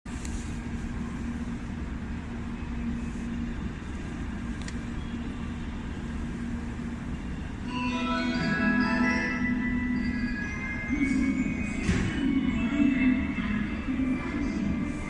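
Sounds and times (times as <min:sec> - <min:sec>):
low rumble and hum of station: 0:00.1 - 0:15.0.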